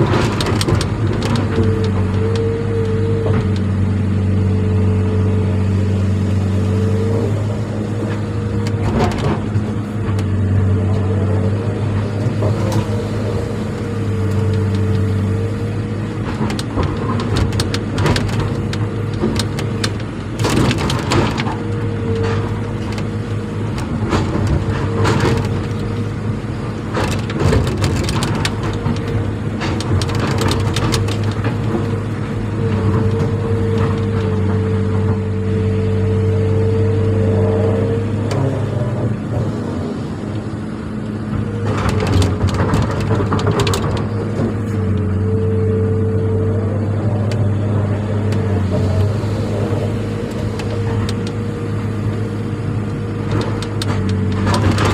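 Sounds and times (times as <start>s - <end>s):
crunching and cracking: 0.0s - 4.2s, 5.2s - 35.3s, 37.7s - 45.4s, 46.9s - 54.9s
engine running: 0.0s - 54.9s.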